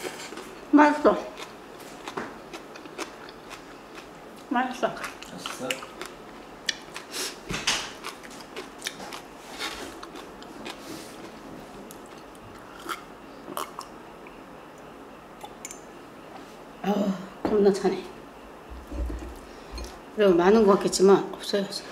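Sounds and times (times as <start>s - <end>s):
chewing crunchy food: 0.0s - 15.8s.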